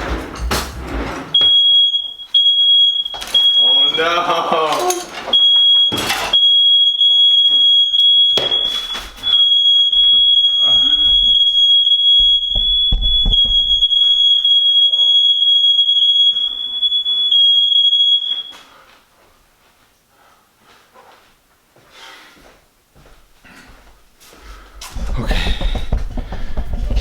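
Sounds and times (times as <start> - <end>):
knocks and thumps: 0.0 - 1.4, 10.0 - 14.2, 24.8 - 27.0
smoke alarm tone: 1.3 - 4.5, 5.3 - 18.7.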